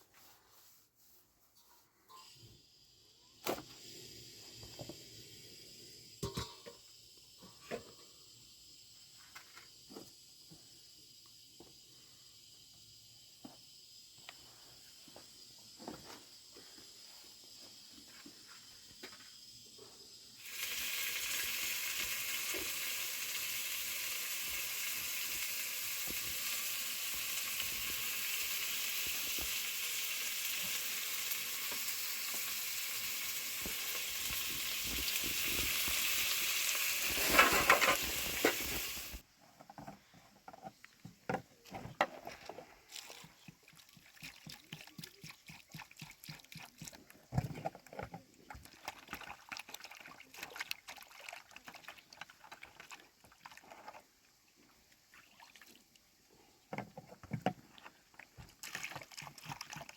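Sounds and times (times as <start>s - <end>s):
food sizzling in hot oil: 2.1s - 9.1s, 20.1s - 39.2s.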